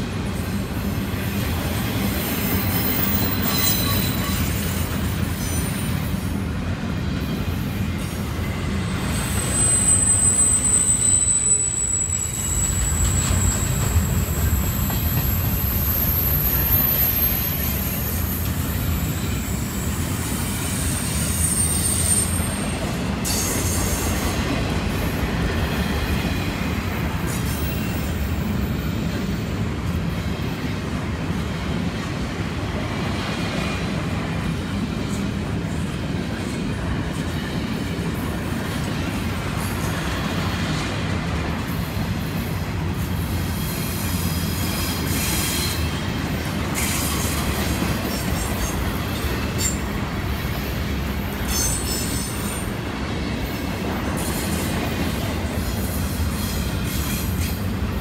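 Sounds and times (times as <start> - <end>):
freight train wheels rumbling: 0.0 - 58.0
high-pitched wheel squeals: 2.3 - 6.0, 8.4 - 24.2, 51.4 - 52.6.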